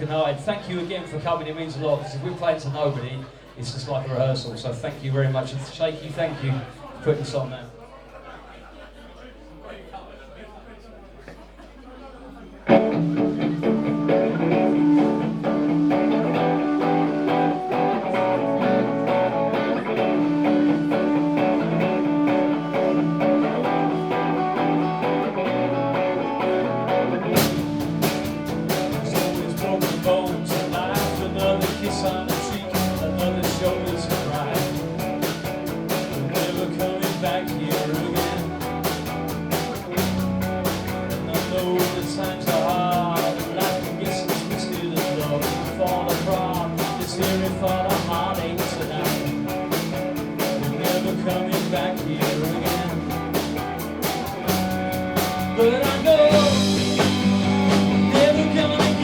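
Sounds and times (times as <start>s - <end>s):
bass guitar: 12.7s - 59.0s
drums: 12.7s - 59.0s
electric guitar: 12.7s - 59.0s.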